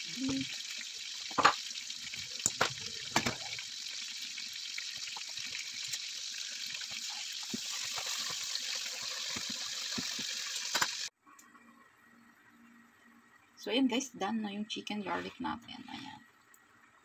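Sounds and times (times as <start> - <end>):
chicken sizzling in a frying pan: 0.0 - 11.1.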